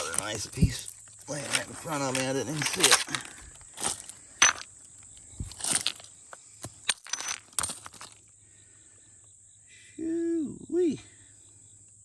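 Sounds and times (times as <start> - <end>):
stones clinking and crunching: 0.0 - 8.3.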